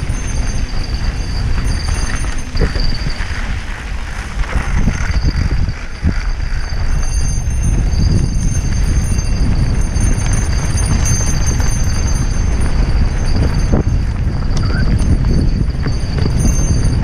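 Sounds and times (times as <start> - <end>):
bike rattling over dirt trail: 0.0 - 17.0
faint high whine: 0.0 - 17.0
wind rumble on microphone: 0.0 - 17.0.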